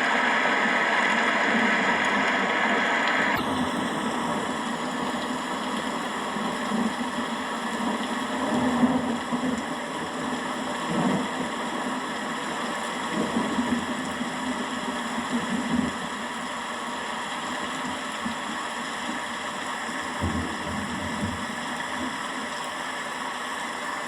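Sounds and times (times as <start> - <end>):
rain hissing: 0.0 - 24.0
thunder rumbling: 3.4 - 16.4.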